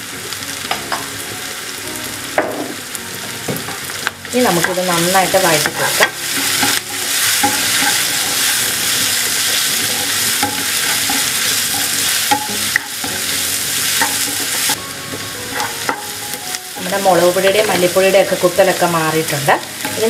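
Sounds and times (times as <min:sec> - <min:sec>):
onions sizzling in hot oil: 0:00.0 - 0:20.0
wooden spatula scraping pan: 0:04.5 - 0:16.1.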